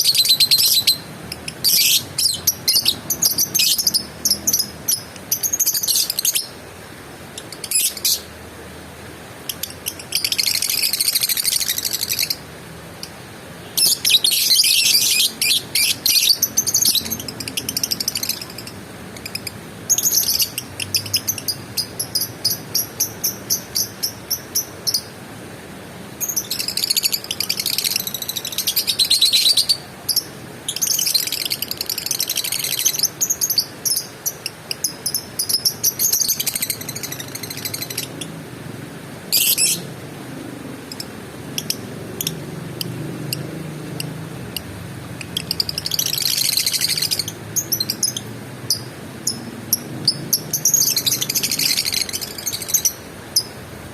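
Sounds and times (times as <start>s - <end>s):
lovebird chattering trills: 0.0s - 6.6s, 7.3s - 8.3s, 13.8s - 25.1s, 26.2s - 38.3s, 39.3s - 39.9s, 40.8s - 53.6s.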